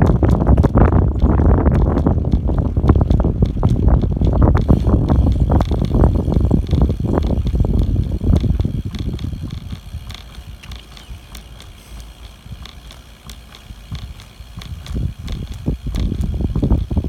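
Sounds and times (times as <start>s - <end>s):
bicycle clicks and rattles: 0.0s - 17.0s
wind buffeting microphone: 0.0s - 17.0s.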